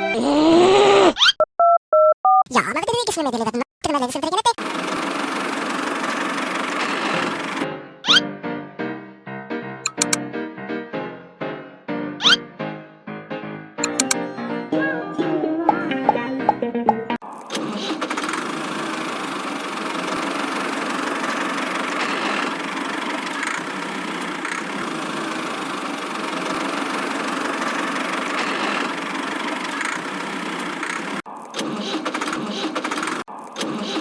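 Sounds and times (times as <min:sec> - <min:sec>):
small engine running: 0:04.6 - 0:08.2, 0:17.6 - 0:31.2, 0:32.0 - 0:33.3.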